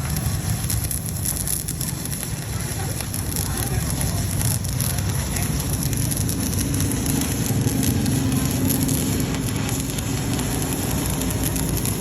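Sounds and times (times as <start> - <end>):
welding arc crackling sizzle: 0.0 - 12.0.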